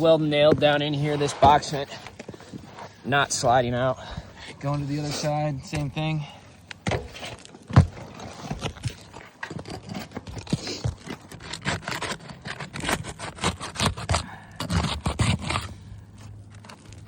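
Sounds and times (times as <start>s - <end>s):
shingles scraping and clicking: 0.0s - 3.0s, 6.7s - 17.0s.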